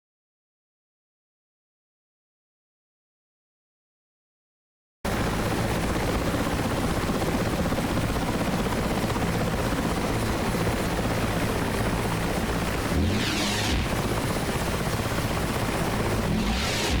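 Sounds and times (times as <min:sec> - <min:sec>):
helicopter rotor and turbine: 0:05.1 - 0:17.0.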